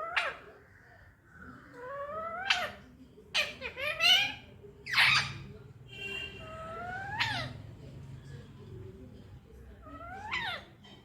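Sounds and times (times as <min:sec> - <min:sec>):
parakeet talking: 0:00.0 - 0:00.5, 0:01.7 - 0:05.5, 0:06.4 - 0:07.6, 0:09.8 - 0:10.8.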